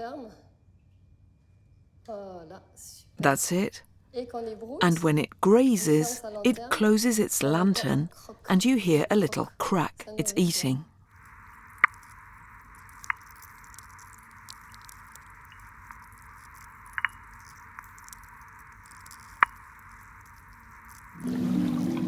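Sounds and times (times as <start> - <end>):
steady underwater hiss: 3.2 - 3.8, 4.8 - 22.0
sea urchin teeth cracking underwater: 11.1 - 21.2.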